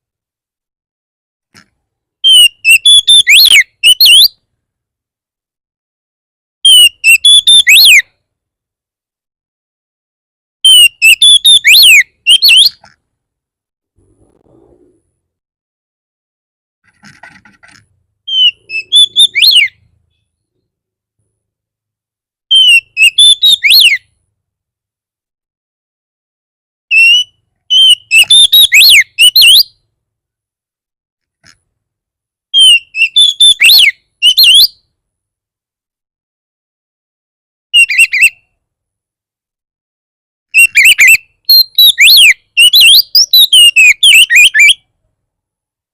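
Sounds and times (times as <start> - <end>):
bird whistled song: 2.2 - 4.4, 6.6 - 8.1, 10.6 - 12.8, 18.3 - 20.6, 22.5 - 24.2, 26.9 - 29.8, 32.5 - 34.9, 37.8 - 38.5, 40.5 - 44.9.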